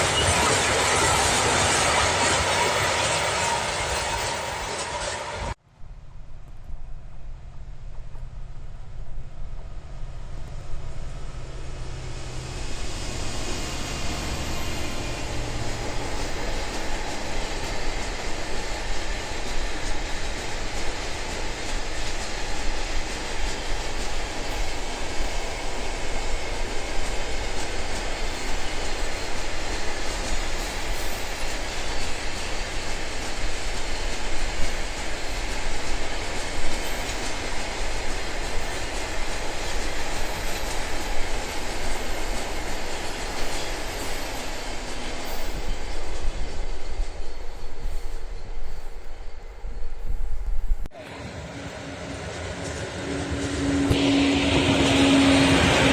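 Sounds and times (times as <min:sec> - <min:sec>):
train wheels rumbling on rails: 0:00.0 - 0:05.6, 0:06.3 - 0:55.9
wheels clacking over rail joints: 0:11.7 - 0:49.0.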